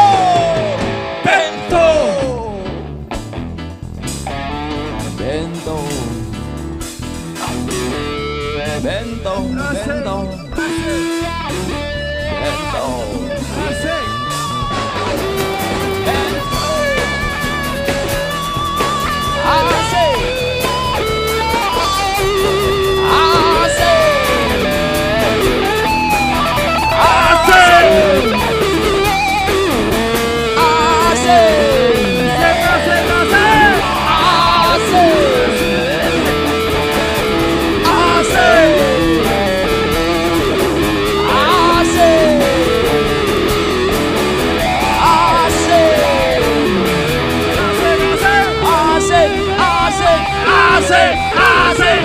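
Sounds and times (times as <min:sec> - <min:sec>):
person shouting: 0:00.0 - 0:02.7, 0:16.0 - 0:17.3, 0:19.3 - 0:20.3, 0:23.0 - 0:25.4, 0:26.8 - 0:28.8, 0:30.6 - 0:36.3, 0:37.8 - 0:39.4, 0:41.2 - 0:42.9, 0:44.7 - 0:46.7, 0:47.6 - 0:52.0
lead guitar solo: 0:00.0 - 0:02.9, 0:09.5 - 0:52.0
rock band playing: 0:00.0 - 0:52.0.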